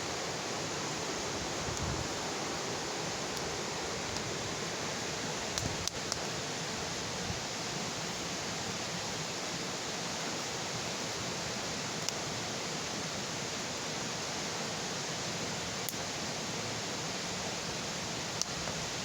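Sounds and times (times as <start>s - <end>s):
bonfire hissing: 0.0s - 19.0s
fire crackle pop: 5.5s - 6.3s.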